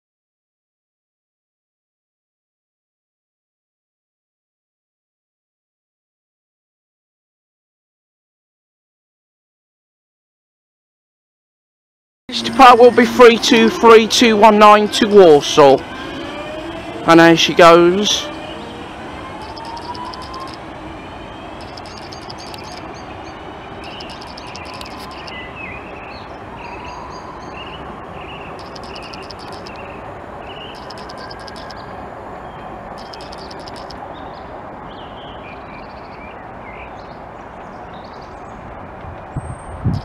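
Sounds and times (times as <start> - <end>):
train rail rumble: 12.3 - 35.0
birds chirping: 12.4 - 20.6, 21.3 - 38.7.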